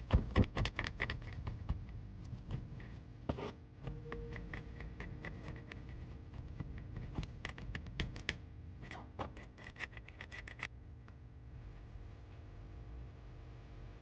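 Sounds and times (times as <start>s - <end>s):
scratching and clicking strokes: 0.3s - 10.7s.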